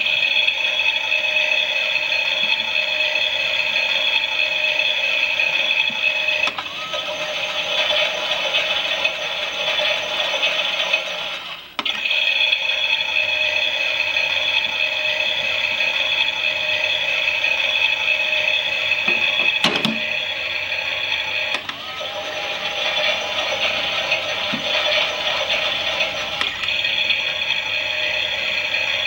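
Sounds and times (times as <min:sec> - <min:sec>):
toy washing machine whirring: 0:00.0 - 0:29.0
clicks: 0:19.1 - 0:20.2.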